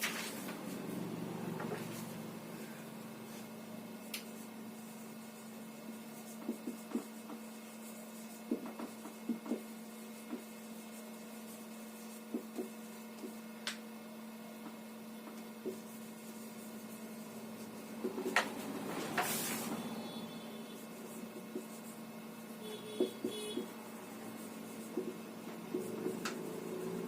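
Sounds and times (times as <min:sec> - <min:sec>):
faint electrical hum: 0:00.0 - 0:27.0
pen taps and scrapes of writing: 0:06.3 - 0:07.4, 0:08.4 - 0:10.5, 0:12.3 - 0:13.8, 0:18.0 - 0:19.4, 0:21.3 - 0:21.8, 0:22.9 - 0:23.7, 0:24.8 - 0:26.6.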